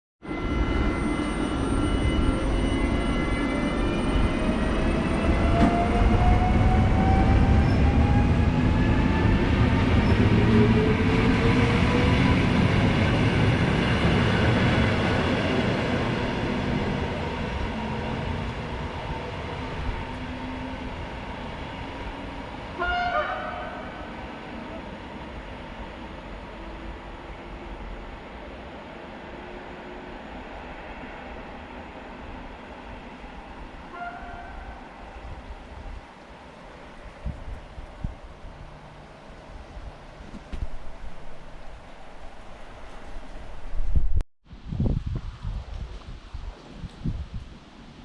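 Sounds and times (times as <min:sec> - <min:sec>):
train wheels rumbling on rails: 0:00.4 - 0:28.3
train horn blast: 0:22.7 - 0:24.1, 0:33.9 - 0:34.9.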